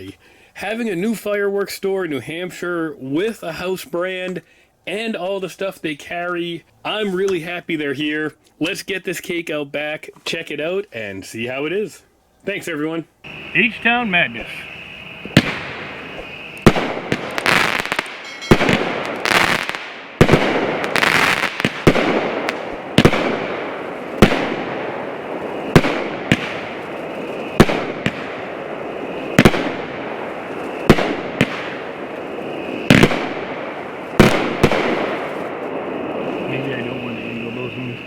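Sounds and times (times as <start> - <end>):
firework breaks crackling: 13.3 - 38.0
firework shots: 13.3 - 38.0.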